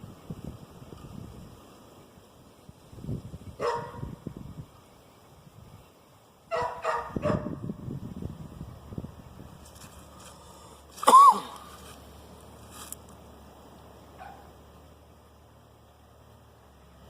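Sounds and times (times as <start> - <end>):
dog barking: 3.6 - 4.1, 6.5 - 7.6, 14.2 - 14.5.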